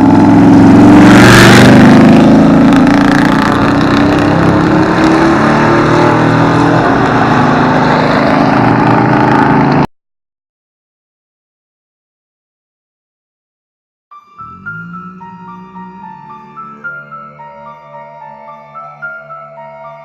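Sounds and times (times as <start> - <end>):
truck engine at high revs: 0.0 - 9.9, 14.4 - 20.0.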